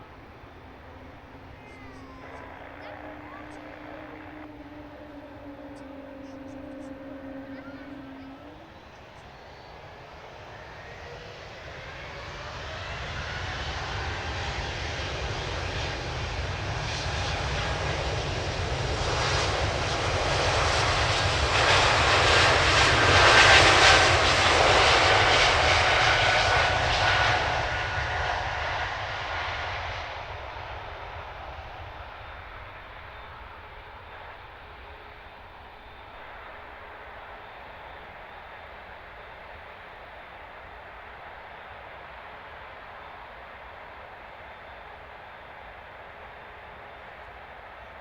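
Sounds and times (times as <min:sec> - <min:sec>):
faint whine sliding down in pitch: 0:00.0 - 0:14.4
airliner engine noise passing: 0:00.0 - 0:48.0.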